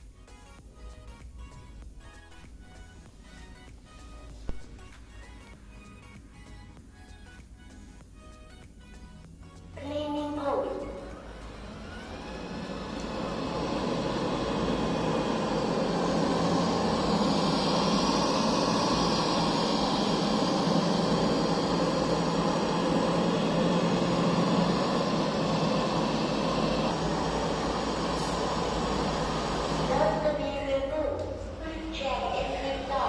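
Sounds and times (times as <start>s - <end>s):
robot vacuum humming: 10.9s - 33.0s.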